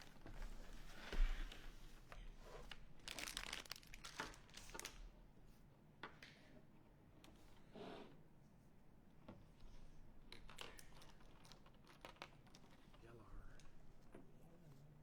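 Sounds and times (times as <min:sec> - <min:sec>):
art supplies crinkling and rustling: 0:02.5 - 0:05.1, 0:10.3 - 0:13.8.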